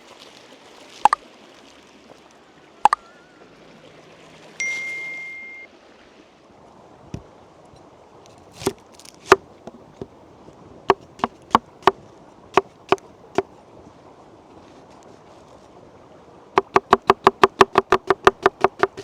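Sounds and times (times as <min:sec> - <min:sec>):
chopping strikes: 0:08.6 - 0:09.4, 0:10.9 - 0:12.0, 0:12.6 - 0:13.0, 0:16.6 - 0:19.0.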